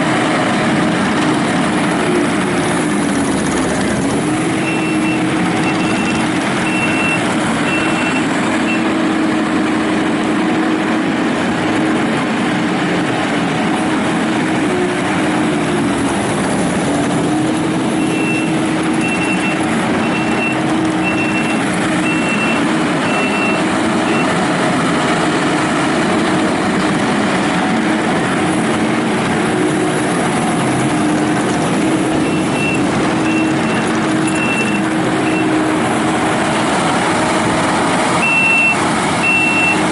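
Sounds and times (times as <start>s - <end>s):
diesel engine running: 0.0s - 39.9s
backup alarm beeping: 4.6s - 8.8s, 32.1s - 35.5s, 38.2s - 39.8s.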